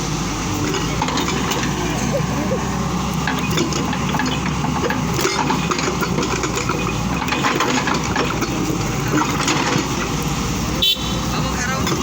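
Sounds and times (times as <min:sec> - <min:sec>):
excavator diesel engine hum: 0:00.0 - 0:12.0
metal clanks and rattles: 0:00.6 - 0:02.0, 0:03.2 - 0:10.3, 0:11.7 - 0:12.0.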